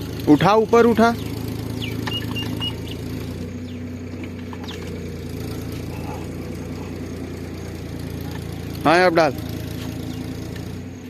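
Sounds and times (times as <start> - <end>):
diesel engine idling: 0.0 - 11.0
high-pitched chirp: 1.2 - 4.0.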